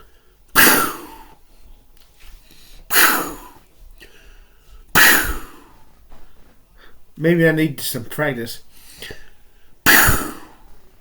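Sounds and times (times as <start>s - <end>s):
man imitating explosion with mouth: 0.6s - 1.3s, 2.9s - 3.6s, 4.9s - 5.7s, 9.8s - 10.6s.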